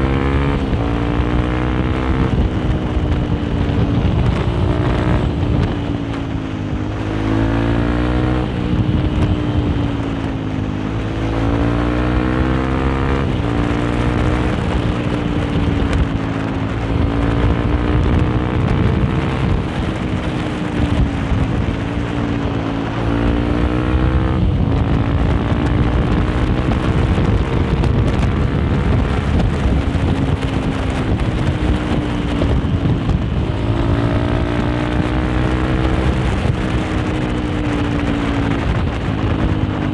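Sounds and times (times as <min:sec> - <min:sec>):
motorcycle engine running: 0:00.0 - 0:39.9
wind on microphone: 0:00.0 - 0:39.9.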